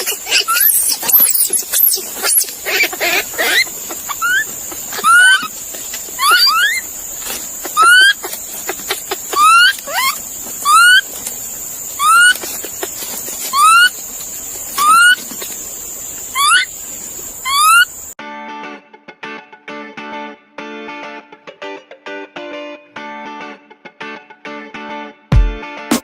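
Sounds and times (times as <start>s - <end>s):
animal squeaky calls: 0.0s - 11.1s, 11.9s - 14.0s, 14.8s - 15.2s, 16.3s - 16.7s, 17.4s - 18.0s.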